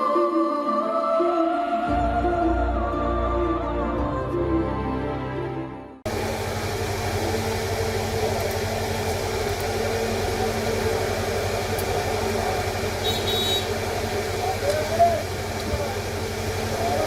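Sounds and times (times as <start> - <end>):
music: 0.0 - 6.1.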